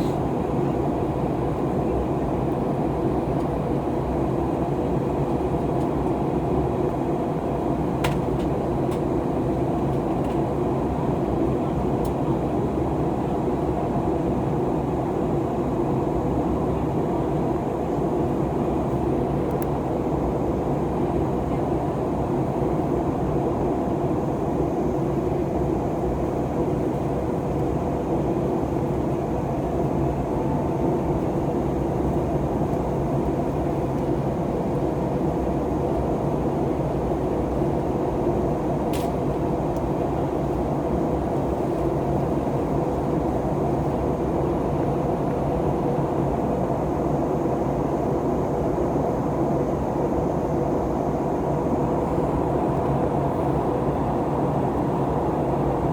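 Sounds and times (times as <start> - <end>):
jet engine cabin drone: 0.0 - 55.9
faint humming tones: 25.2 - 55.9.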